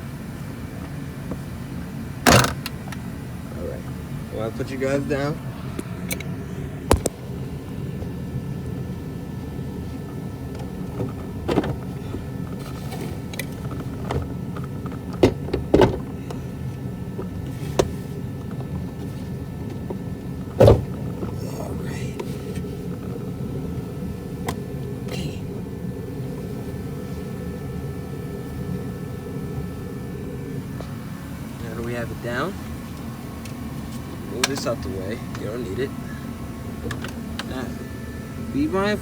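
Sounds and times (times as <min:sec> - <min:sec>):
steady low hum: 0:00.0 - 0:39.0
knocks of plastic and metal parts: 0:13.4 - 0:16.1.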